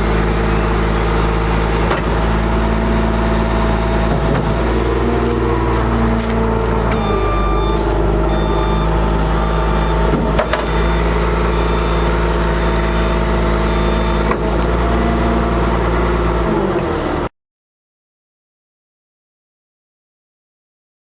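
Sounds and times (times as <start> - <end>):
diesel truck engine running: 0.0 - 17.3
faint high beep: 6.9 - 10.0.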